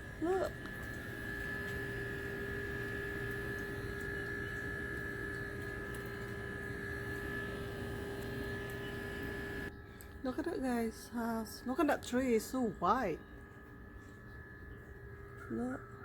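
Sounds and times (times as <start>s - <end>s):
high machine whine: 0.0s - 16.0s
machine hum: 0.0s - 16.0s.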